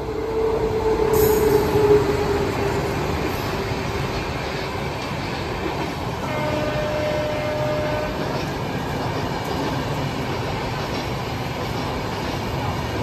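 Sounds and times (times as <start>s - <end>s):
train horn: 0.3s - 2.8s, 6.2s - 8.4s.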